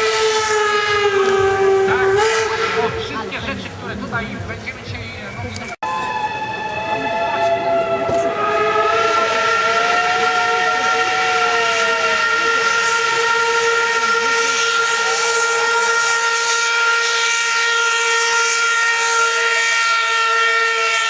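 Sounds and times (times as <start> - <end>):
steam locomotive whistles: 0.0 - 3.6, 5.2 - 21.0.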